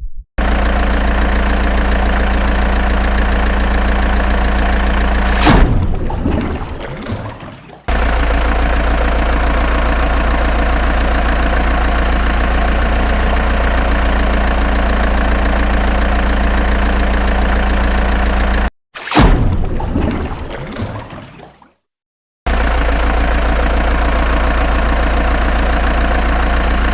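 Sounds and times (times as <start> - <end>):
engine idling: 0.4 - 5.6, 7.9 - 18.7, 22.5 - 26.9
loud boom-like impact: 5.2 - 6.7, 19.1 - 20.3.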